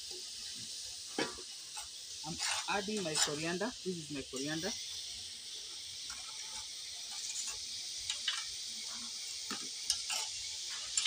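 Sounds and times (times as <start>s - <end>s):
onions sizzling in hot oil: 0.0s - 11.0s
wooden spoon scraping a pan: 1.2s - 3.6s, 6.0s - 11.0s.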